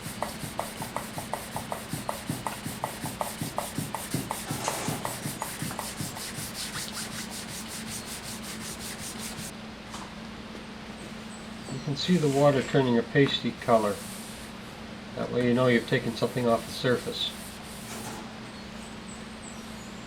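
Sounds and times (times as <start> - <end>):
wet sandpaper rubbing on wood: 0.0 - 9.5, 15.7 - 18.0.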